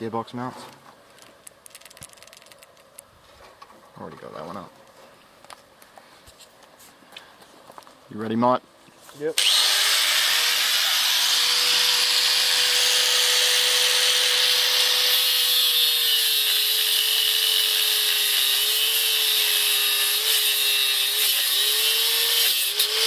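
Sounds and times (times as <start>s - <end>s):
angle grinder cutting metal: 9.4s - 23.0s.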